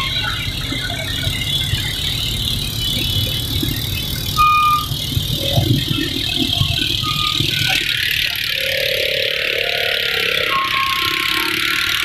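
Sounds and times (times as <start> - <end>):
traffic rushing noise: 0.0 - 12.0
vehicle engines rumbling: 0.0 - 12.0
short horn beep: 4.4 - 5.0.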